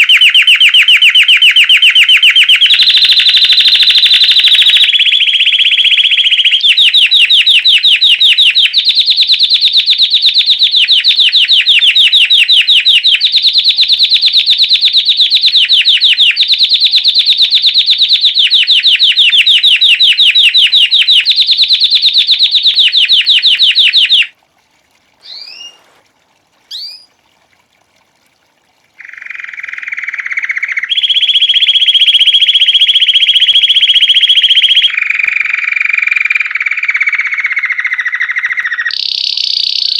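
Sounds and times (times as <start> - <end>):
canary trilling: 18.7 - 24.3, 25.2 - 26.0, 26.7 - 27.1
short bird chirps: 25.2 - 26.0, 26.7 - 27.2, 37.0 - 39.9.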